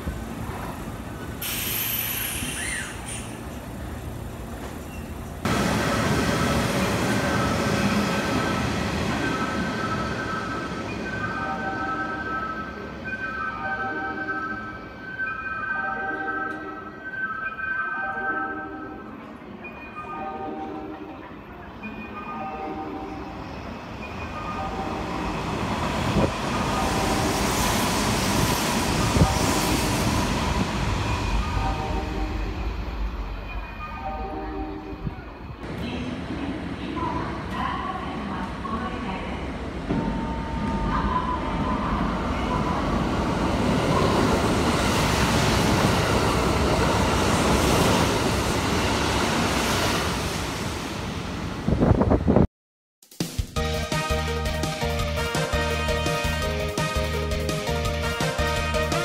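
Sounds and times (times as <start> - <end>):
train rushing past: 0.0 - 15.2, 23.0 - 52.5.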